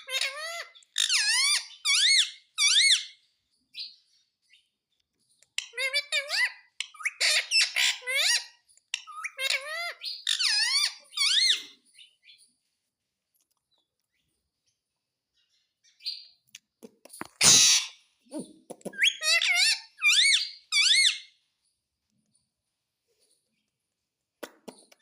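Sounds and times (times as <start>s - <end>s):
high squeaky parakeet calls: 0.0s - 3.2s, 5.6s - 11.8s, 17.3s - 21.4s
parakeet harsh squawk: 5.7s - 11.8s, 17.4s - 18.0s, 18.9s - 21.3s.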